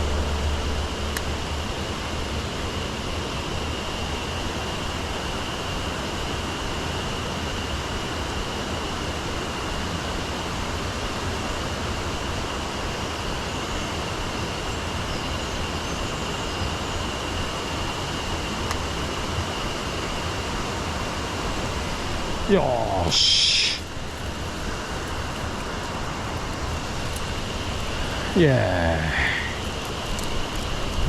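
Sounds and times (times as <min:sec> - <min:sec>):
thin high tone: 0:00.0 - 0:02.5
stream rushing over rocks: 0:16.8 - 0:31.0.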